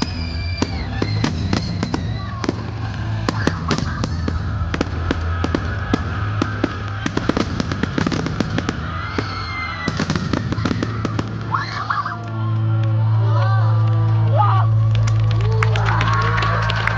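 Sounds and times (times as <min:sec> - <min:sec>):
fireworks cracking and popping: 0:00.0 - 0:12.9
steady low drone: 0:00.0 - 0:16.9.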